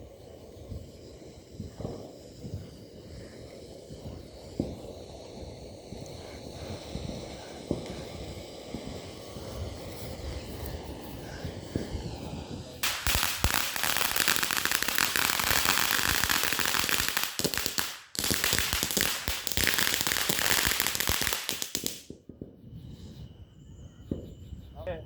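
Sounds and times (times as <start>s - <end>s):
firework crackling: 0.0s - 23.1s.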